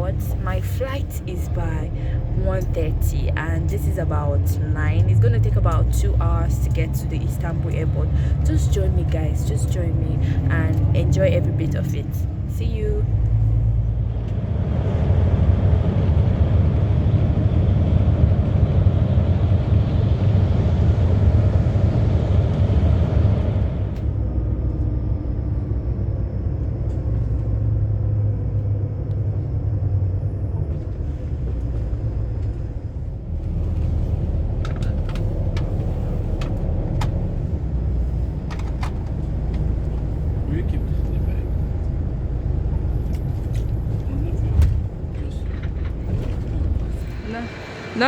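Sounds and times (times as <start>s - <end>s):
bus engine rumble: 0.0s - 48.0s
hissing road noise: 30.8s - 48.0s.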